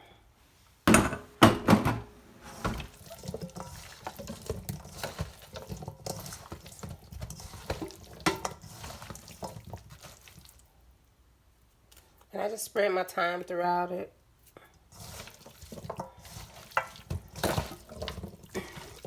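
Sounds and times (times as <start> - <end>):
wet squelching of mixing meat: 2.5 - 10.8, 14.7 - 19.0.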